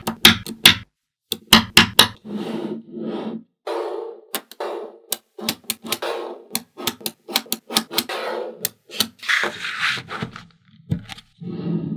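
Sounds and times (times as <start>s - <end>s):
magnetic balls clicking together: 4.4s - 8.1s.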